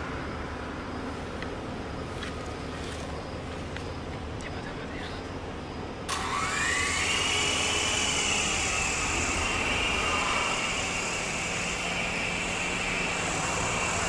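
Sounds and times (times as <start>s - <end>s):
small electric motors whining: 6.1s - 14.0s.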